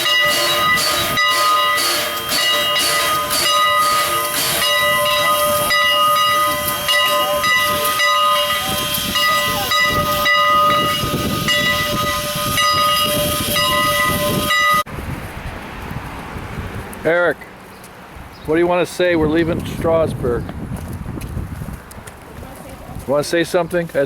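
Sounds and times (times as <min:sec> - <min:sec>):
steam locomotive hissing: 0:00.0 - 0:14.8
steam whistling tones: 0:00.0 - 0:14.9.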